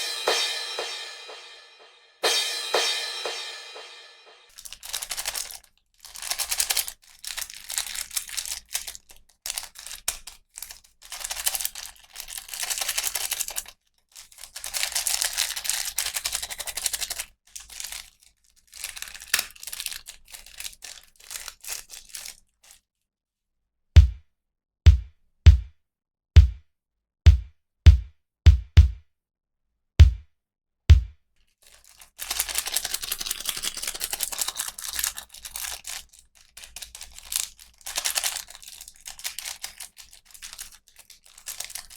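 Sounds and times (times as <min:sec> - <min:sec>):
deep drum beat: 0:00.0 - 0:04.5, 0:24.0 - 0:24.2, 0:24.9 - 0:25.8, 0:26.4 - 0:26.7, 0:27.3 - 0:29.1, 0:30.0 - 0:30.3, 0:30.9 - 0:31.2
plastic packaging crinkling and tearing: 0:04.5 - 0:22.9, 0:31.4 - 0:41.9.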